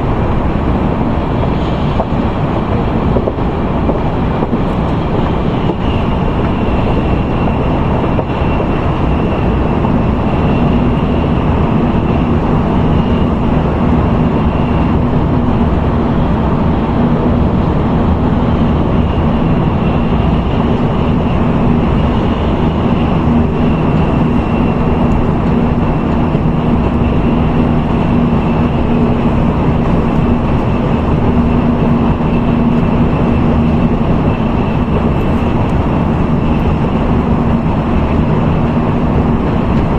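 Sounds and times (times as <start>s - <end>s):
low hum: 0.0s - 39.9s
train running noise: 0.0s - 39.9s.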